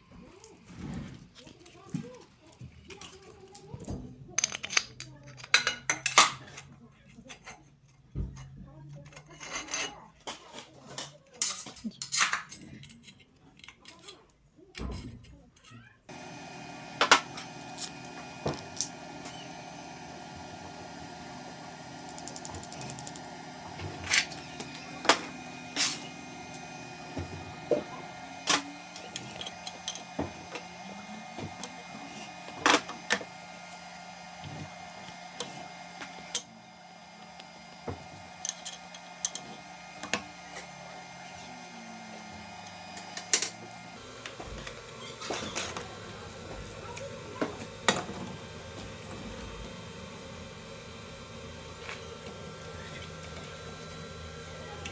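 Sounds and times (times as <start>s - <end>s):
steady machine hum: 16.1s - 54.9s.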